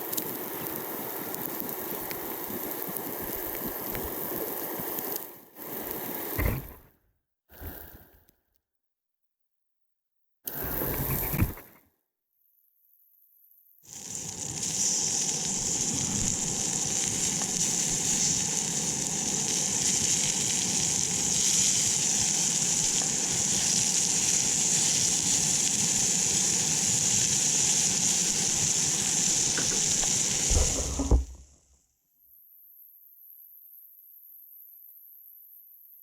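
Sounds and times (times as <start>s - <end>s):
food frying sizzle: 0.0s - 6.8s, 13.9s - 31.4s.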